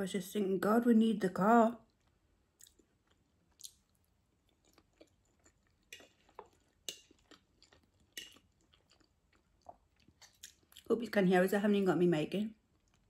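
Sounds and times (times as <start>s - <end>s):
chewing and mouth clicks: 1.9s - 10.9s, 12.7s - 13.0s.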